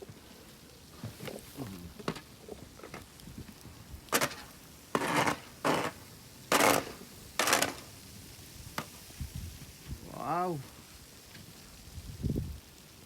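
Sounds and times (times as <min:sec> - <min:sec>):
footsteps crunching through snow: 0:00.0 - 0:07.8.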